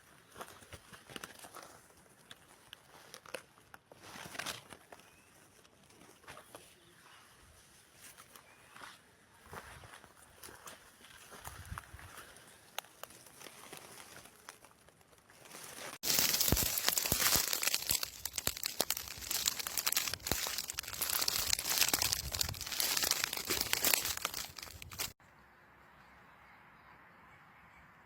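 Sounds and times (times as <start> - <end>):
dry leaves and twigs crackling: 0.2 - 6.6, 11.2 - 25.2.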